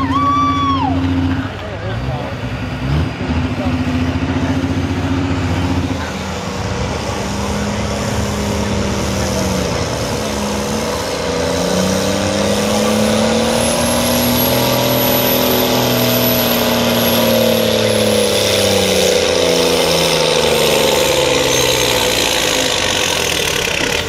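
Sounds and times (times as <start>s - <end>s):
diesel truck engine under load: 0.0s - 24.0s.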